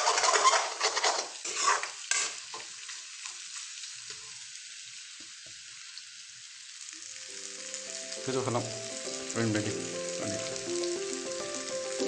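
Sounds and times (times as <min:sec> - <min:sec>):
utensil scraping a pan: 0:00.0 - 0:02.8
food sizzling in a pan: 0:00.0 - 0:12.0.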